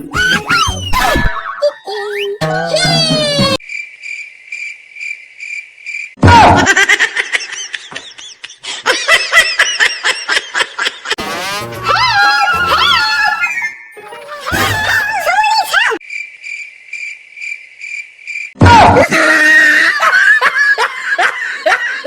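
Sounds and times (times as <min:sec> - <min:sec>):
high warbling chirps and squeaks: 0:11.2 - 0:16.0
pulsing high electronic tone: 0:11.2 - 0:16.0.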